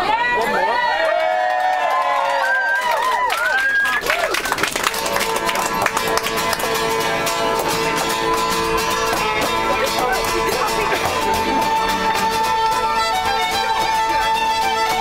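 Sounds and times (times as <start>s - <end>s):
melody instrument holding long notes: 4.7s - 15.0s
strummed acoustic guitar: 4.8s - 15.0s.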